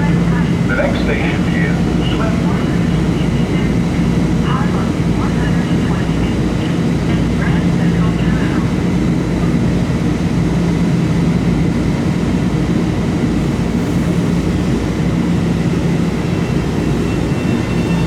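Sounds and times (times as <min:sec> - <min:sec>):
commuter train rumbling: 0:00.0 - 0:18.0.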